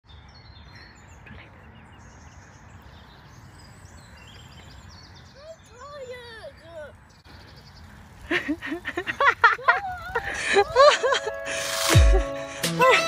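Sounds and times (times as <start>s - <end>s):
birds chirping and singing: 0.0s - 9.2s.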